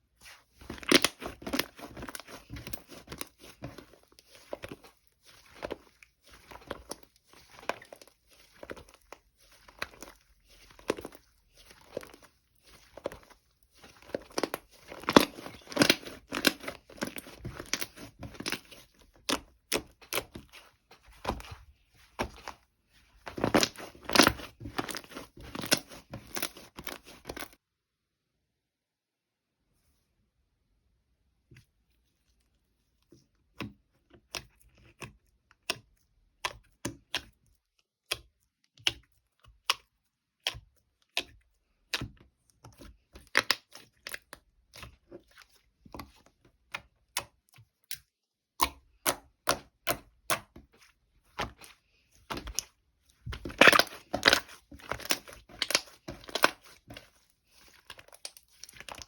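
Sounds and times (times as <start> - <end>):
sharp crackles and crinkles: 0.2 - 27.6, 51.2 - 59.0.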